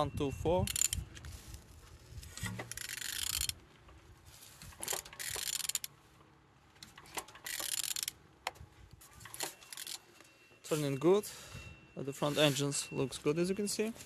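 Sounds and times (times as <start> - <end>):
ratchet wrench clicking: 0.6 - 1.1, 2.4 - 3.6, 4.7 - 5.9, 7.0 - 8.2, 9.3 - 10.0.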